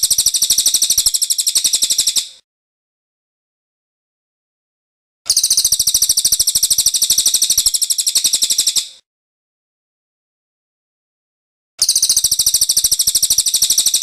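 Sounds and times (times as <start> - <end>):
bird high-pitched rolling trill: 0.0 - 2.3, 5.3 - 8.9, 11.8 - 14.0.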